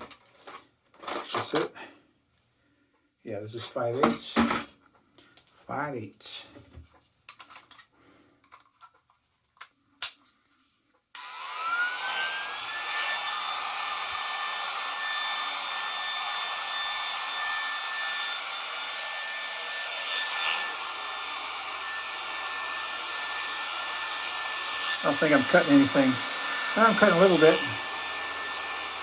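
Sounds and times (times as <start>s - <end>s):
hair clippers whining: 11.2s - 29.0s.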